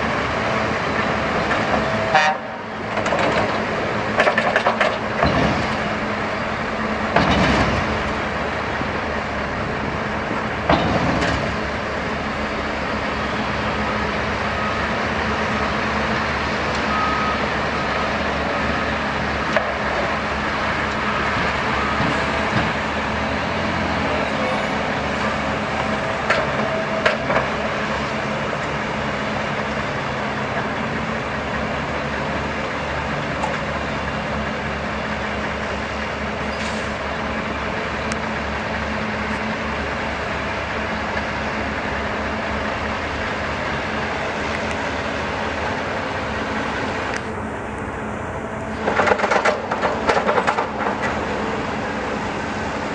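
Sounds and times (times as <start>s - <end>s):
heavy machinery running: 0.0s - 52.9s
reversing alarm beeping: 12.9s - 19.3s, 20.6s - 25.7s.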